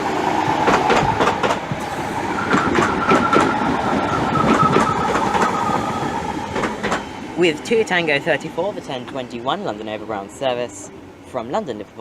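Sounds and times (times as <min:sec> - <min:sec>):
electric train whine: 0:00.0 - 0:10.1
train wheels clicking over rail joints: 0:00.1 - 0:07.2
higher whine: 0:01.8 - 0:06.9.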